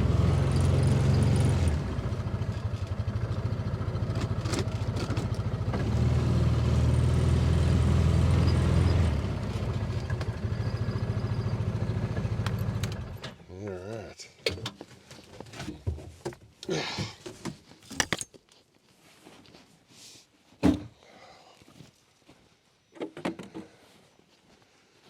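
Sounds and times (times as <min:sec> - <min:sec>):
small vehicle engine revving: 0:00.0 - 0:13.4.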